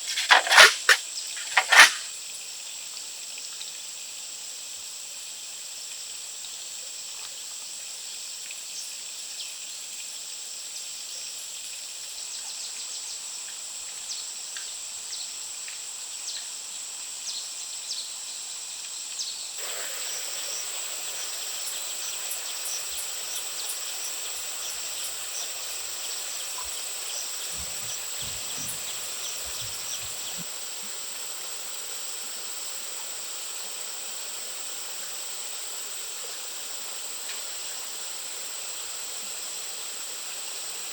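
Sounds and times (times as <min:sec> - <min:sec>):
background hiss: 0:00.0 - 0:02.4, 0:19.6 - 0:40.9.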